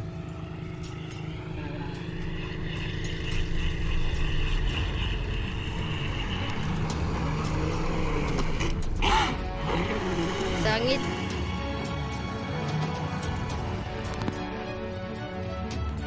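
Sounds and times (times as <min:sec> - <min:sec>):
rc boat motor whine: 0:00.0 - 0:16.0.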